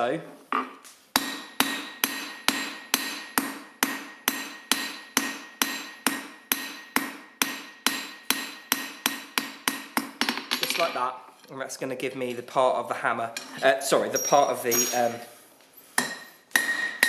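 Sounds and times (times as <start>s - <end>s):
hammer striking steel on anvil: 1.2s - 11.0s, 14.2s - 15.2s, 16.0s - 17.0s.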